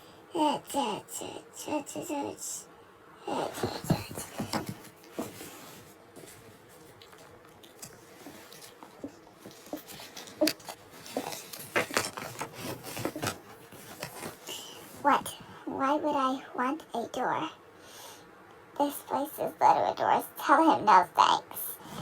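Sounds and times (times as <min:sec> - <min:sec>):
small toys being handled: 0:03.5 - 0:15.2.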